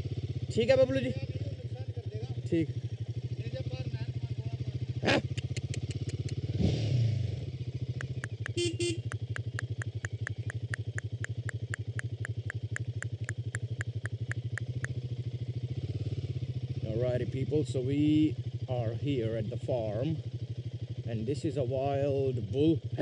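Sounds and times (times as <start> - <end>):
motorcycle engine idling: 0.0 - 23.0
rapid sharp ticks: 5.2 - 6.4, 7.9 - 15.0.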